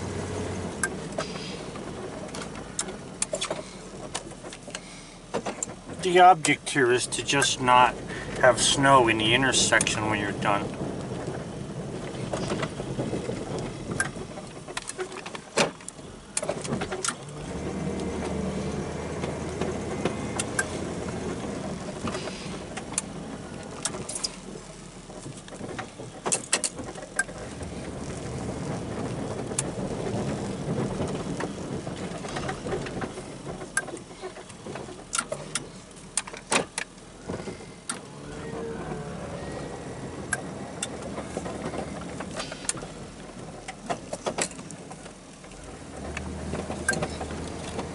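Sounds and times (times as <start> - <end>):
snow plow engine running: 0.0 - 47.9
sharp clicks and knocks: 0.8 - 17.3, 19.2 - 38.1, 40.2 - 47.9.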